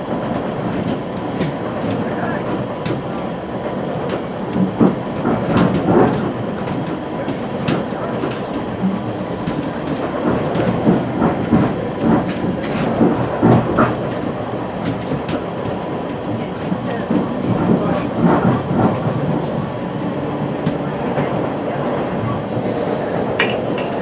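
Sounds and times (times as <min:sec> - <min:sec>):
train rumbling on track: 0:00.0 - 0:24.0
train wheels clicking and knocking: 0:04.1 - 0:08.6, 0:22.6 - 0:24.0.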